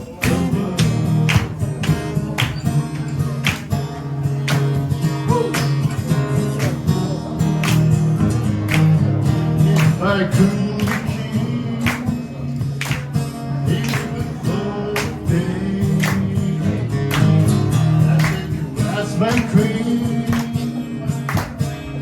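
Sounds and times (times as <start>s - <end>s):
acoustic guitar strumming: 0.0s - 22.0s
person singing: 5.2s - 5.8s, 9.3s - 17.2s.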